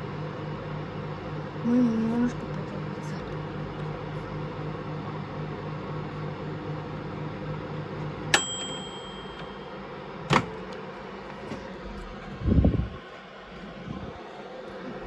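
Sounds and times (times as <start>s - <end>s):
microwave oven humming: 0.0s - 15.0s
microwave click: 8.0s - 10.9s
microwave ding: 8.1s - 10.7s.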